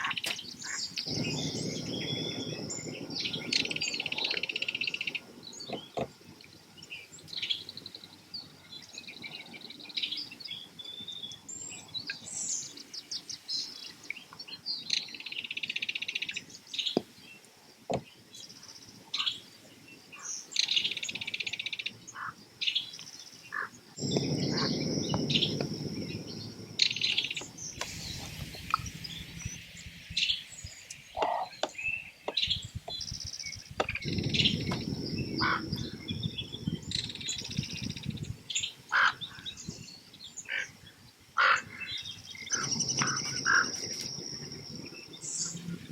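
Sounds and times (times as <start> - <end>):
birds calling: 0.0 - 45.9
low rushing noise: 24.0 - 38.2
dry bird rattles: 42.4 - 44.8.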